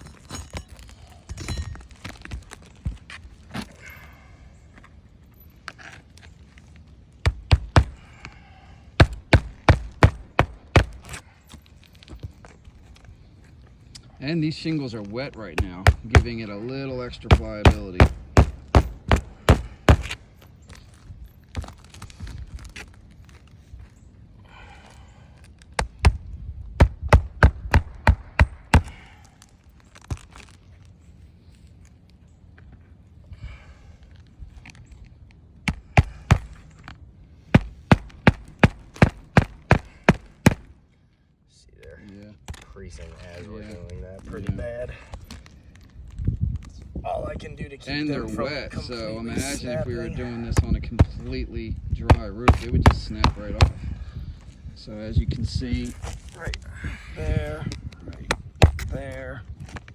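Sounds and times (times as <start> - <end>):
hammer striking nails: 7.2 - 8.0, 9.0 - 11.2, 15.6 - 16.5, 17.2 - 20.2, 37.5 - 40.7, 52.1 - 53.8.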